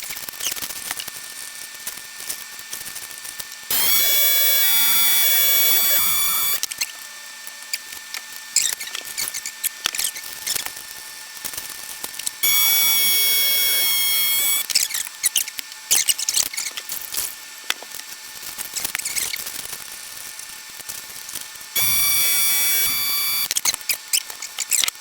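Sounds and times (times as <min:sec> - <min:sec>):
small electric motor whining: 0:03.7 - 0:06.6, 0:12.4 - 0:14.7, 0:21.8 - 0:23.6.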